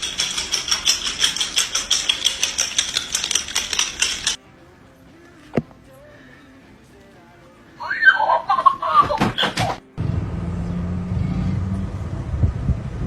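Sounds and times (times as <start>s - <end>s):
rapid sharp clicks: 0.0s - 4.4s.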